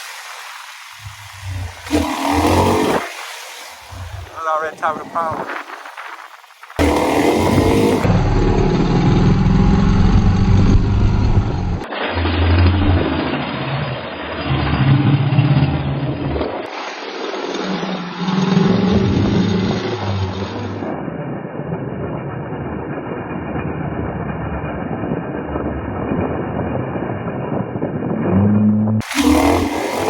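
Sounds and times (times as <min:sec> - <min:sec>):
steady rushing noise: 0:00.0 - 0:14.5, 0:15.7 - 0:30.0
motorcycle engine revving: 0:01.0 - 0:05.7, 0:06.7 - 0:16.9, 0:17.5 - 0:21.0, 0:28.1 - 0:30.0.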